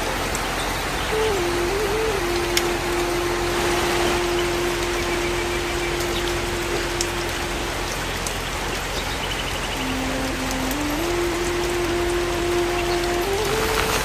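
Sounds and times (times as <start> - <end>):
rain falling: 0.0 - 14.0
faint held tone: 1.1 - 8.1.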